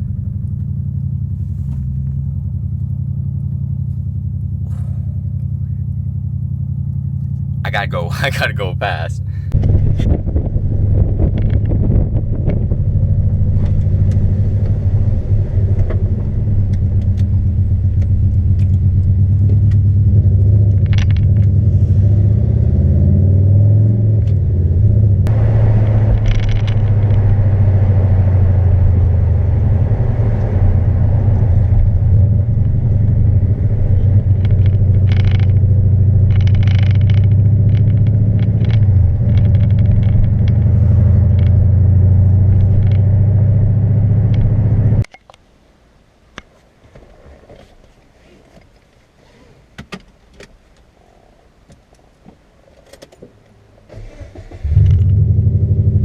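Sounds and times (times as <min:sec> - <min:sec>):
loud car exhaust droning: 0:00.0 - 0:45.1, 0:54.6 - 0:56.0.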